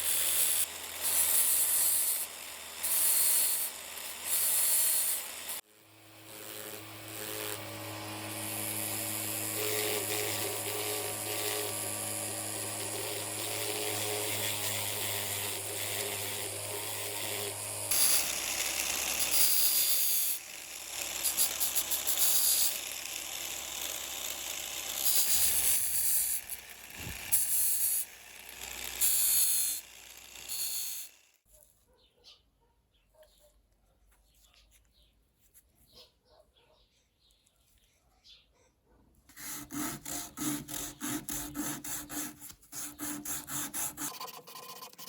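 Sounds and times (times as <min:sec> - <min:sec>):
electric workshop tool humming: 0:00.0 - 0:31.4, 0:39.3 - 0:45.0
grinding hiss: 0:21.0 - 0:31.2.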